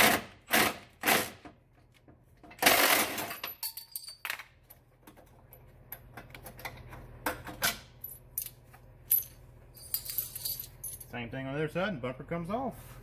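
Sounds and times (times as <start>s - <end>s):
steel bolts clinking and rattling: 3.2s - 11.2s.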